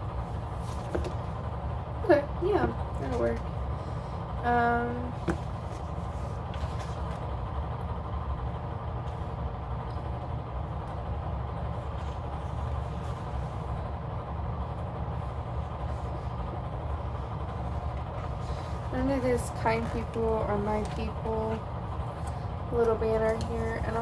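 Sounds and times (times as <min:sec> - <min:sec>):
low background hum: 0:00.0 - 0:24.0
paper rustling: 0:00.4 - 0:01.4, 0:05.0 - 0:07.4, 0:15.8 - 0:24.0.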